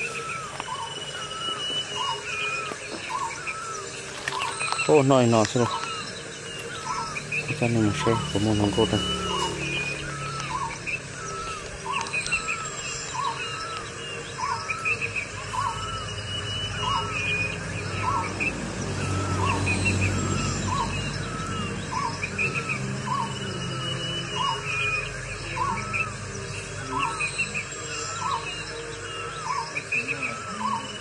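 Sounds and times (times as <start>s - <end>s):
birds chirping and whistling: 0.0s - 31.0s.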